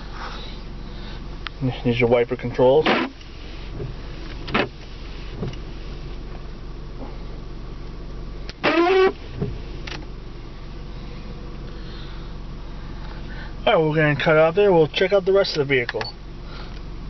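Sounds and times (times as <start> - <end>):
steady low hum: 0.0 - 17.0
windshield wipers sweeping: 2.7 - 6.5, 8.5 - 10.1
wiper blades squeaking on glass: 8.6 - 9.2.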